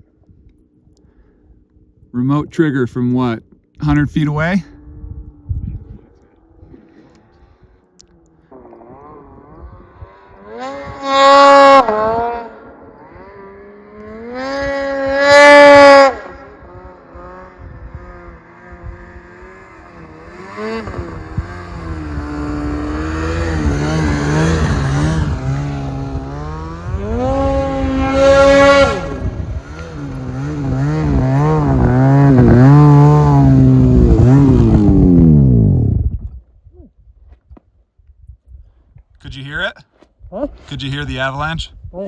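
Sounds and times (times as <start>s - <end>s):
snowmobile engine revving: 8.4s - 36.0s.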